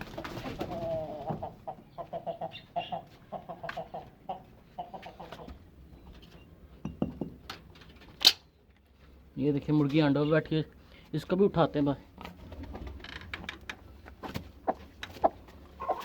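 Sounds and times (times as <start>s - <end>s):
chickens clucking: 0.0s - 6.2s, 12.2s - 16.0s.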